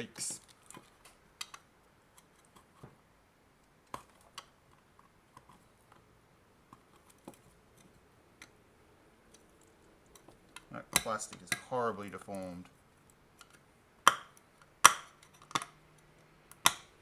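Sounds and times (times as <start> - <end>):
plastic parts clicking and tapping: 0.4 - 3.0, 10.2 - 12.6, 13.4 - 17.0.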